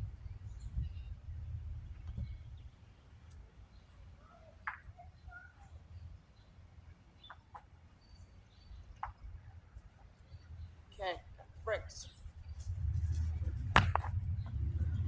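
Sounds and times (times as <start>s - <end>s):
low steady rumble: 0.0s - 2.8s, 10.3s - 15.0s.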